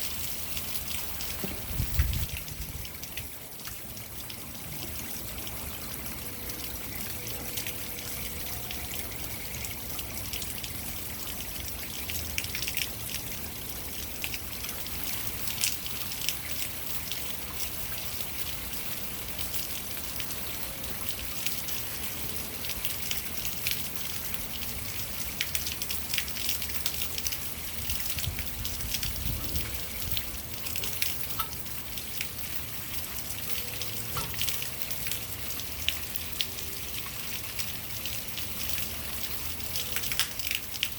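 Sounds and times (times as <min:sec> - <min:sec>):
water pouring down rain chain: 0:00.0 - 0:40.9.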